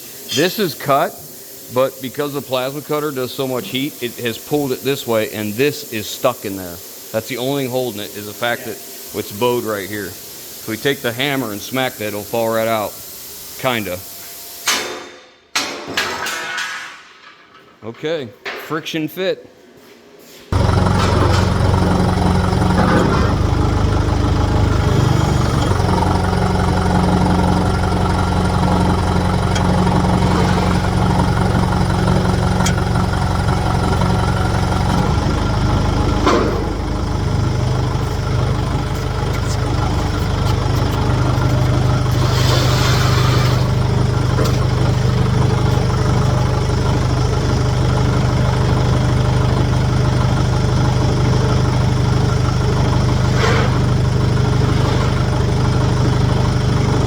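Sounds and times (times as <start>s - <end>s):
engine running: 20.5s - 57.0s
short hiss: 39.0s - 43.8s.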